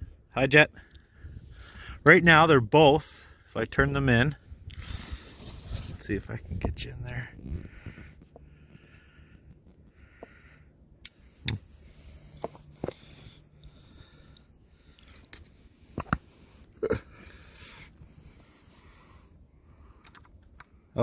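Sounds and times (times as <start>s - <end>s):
faint breathing: 0.0s - 2.1s, 4.4s - 6.0s, 7.4s - 21.0s.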